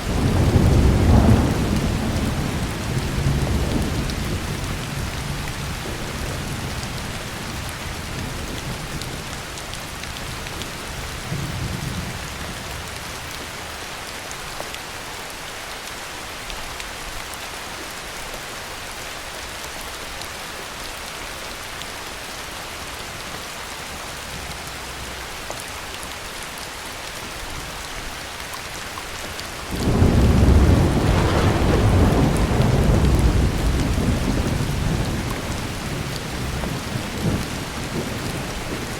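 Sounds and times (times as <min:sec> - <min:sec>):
low thunder rumbling: 0:00.0 - 0:09.2, 0:29.7 - 0:38.9
heavy rain falling: 0:00.0 - 0:38.9
loud thunderclap: 0:00.1 - 0:05.3, 0:29.7 - 0:38.9.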